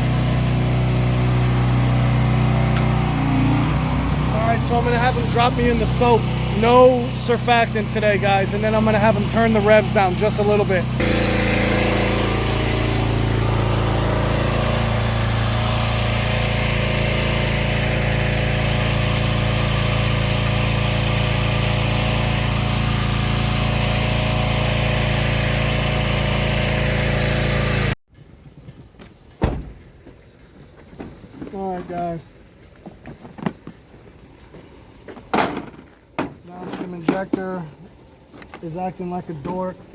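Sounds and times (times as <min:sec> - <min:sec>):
pressure washer engine running: 0:00.0 - 0:28.0.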